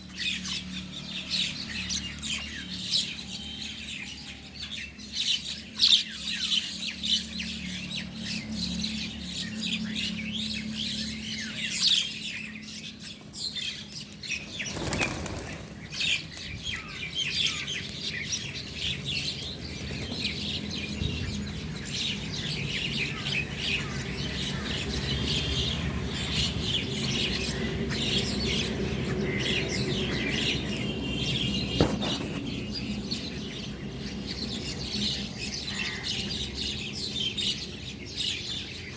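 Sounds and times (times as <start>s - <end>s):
small birds chirping and twittering: 0.0s - 38.9s
wing flapping: 14.4s - 16.5s.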